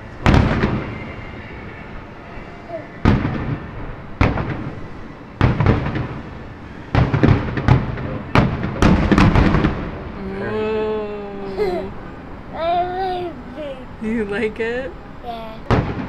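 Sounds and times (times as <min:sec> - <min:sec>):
distant fireworks booming: 0:00.0 - 0:10.2, 0:15.6 - 0:16.0.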